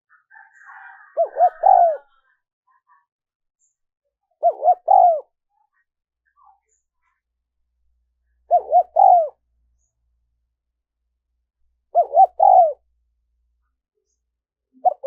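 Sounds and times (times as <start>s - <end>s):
dove cooing: 0.3s - 2.1s, 4.4s - 5.3s, 8.4s - 9.4s, 11.9s - 12.8s, 14.8s - 15.0s.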